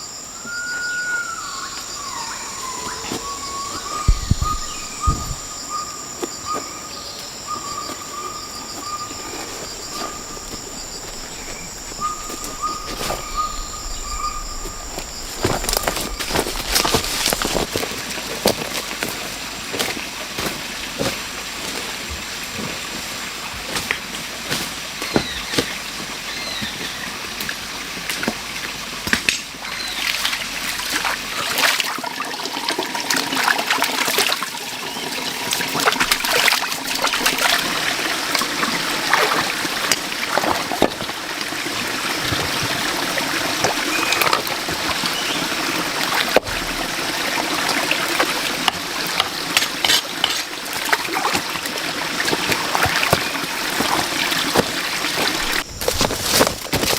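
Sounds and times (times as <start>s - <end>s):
bird chirps: 0.4s - 17.6s
water trickling and splashing: 7.6s - 56.9s.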